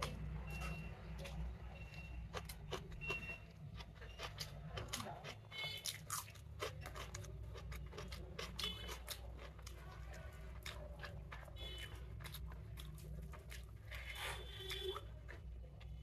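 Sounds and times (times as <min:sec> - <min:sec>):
chewing and crunching food: 0:00.0 - 0:16.0.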